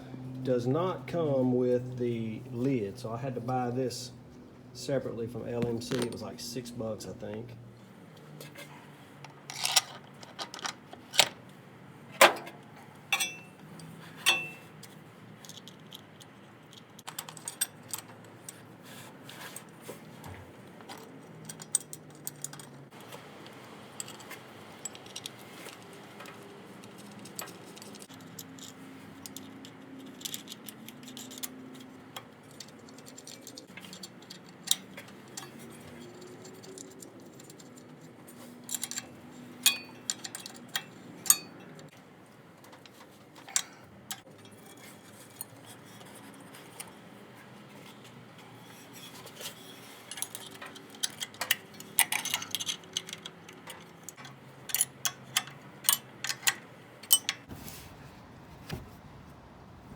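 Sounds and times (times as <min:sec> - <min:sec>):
hand tools clicking on metal: 0:13.1 - 0:18.6, 0:20.9 - 0:42.0, 0:49.1 - 0:57.5.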